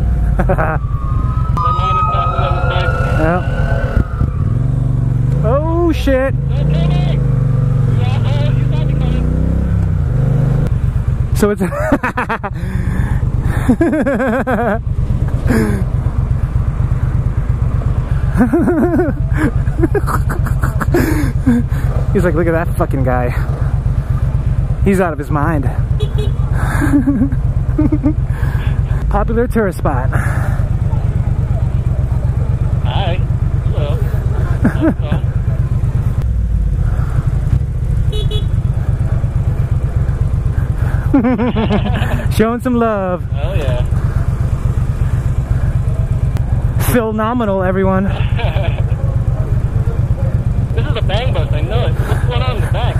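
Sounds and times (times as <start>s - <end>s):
motorcycle engine rumbling: 0.0s - 52.9s
man calling out: 5.4s - 7.3s, 7.9s - 9.3s, 32.7s - 35.4s, 50.7s - 52.9s
vehicle horn beep: 26.0s - 26.4s, 38.1s - 38.6s.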